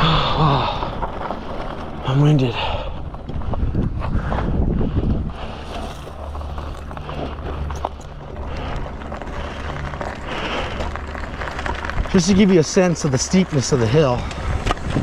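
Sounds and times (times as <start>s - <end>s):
person breathing hard: 0.0s - 1.1s, 4.0s - 11.3s
wind rumbling on microphone: 0.0s - 15.0s.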